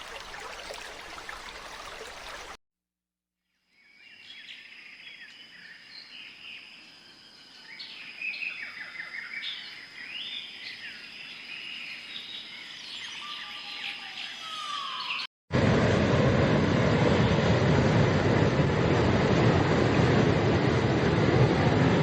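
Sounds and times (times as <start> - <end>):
birds chirping: 7.3 - 15.3
loud steady rushing noise: 15.5 - 22.0.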